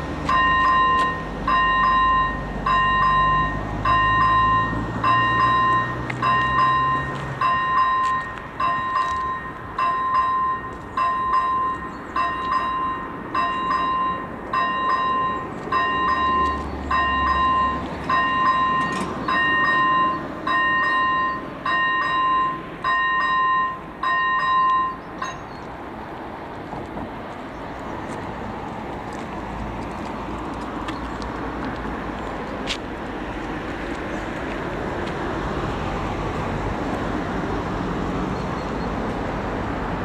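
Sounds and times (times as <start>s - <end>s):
electronic crossing bell ringing: 0.3s - 25.6s.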